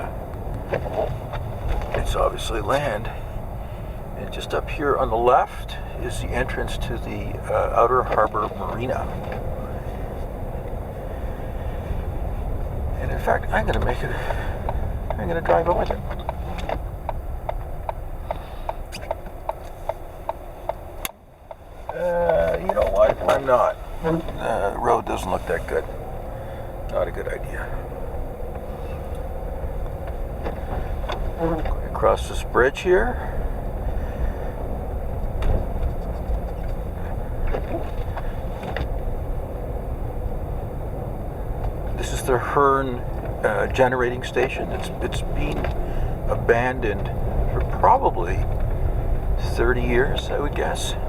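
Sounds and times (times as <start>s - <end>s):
low car rumble: 0.0s - 51.0s
turn signal ticking: 0.0s - 51.0s.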